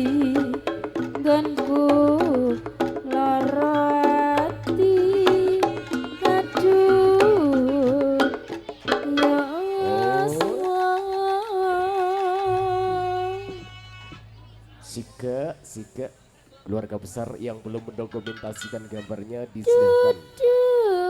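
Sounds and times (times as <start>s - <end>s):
pitched musical accompaniment: 0.0s - 11.2s
person singing: 0.0s - 13.7s, 19.6s - 21.0s
hand drum strokes: 0.0s - 16.2s, 17.1s - 21.0s.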